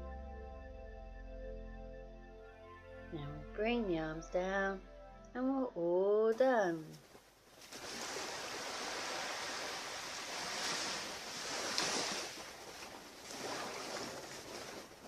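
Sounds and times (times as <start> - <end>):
ocean surf on beach: 7.6 - 15.0.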